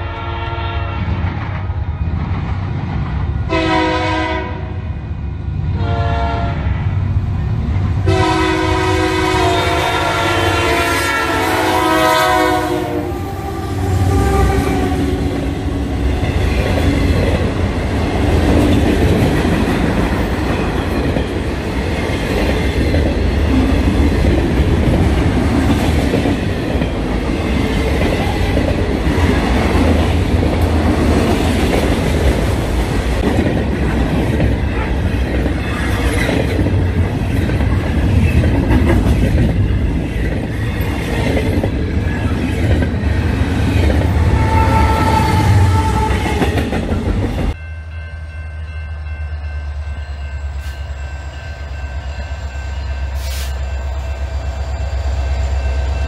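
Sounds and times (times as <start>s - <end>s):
locomotive horn blasts: 0.0s - 1.2s, 3.5s - 4.7s, 5.8s - 6.7s, 8.0s - 15.3s, 44.2s - 46.3s
train rumbling past: 0.0s - 56.0s.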